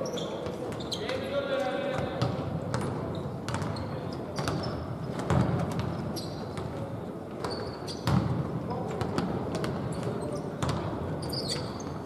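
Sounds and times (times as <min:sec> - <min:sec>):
shoe squeaks: 0:00.0 - 0:01.2, 0:02.8 - 0:04.9, 0:06.0 - 0:06.6, 0:07.4 - 0:08.2, 0:11.2 - 0:12.0
basketball bouncing on hard court: 0:02.0 - 0:03.8, 0:04.4 - 0:06.0, 0:07.4 - 0:08.4, 0:09.0 - 0:11.0.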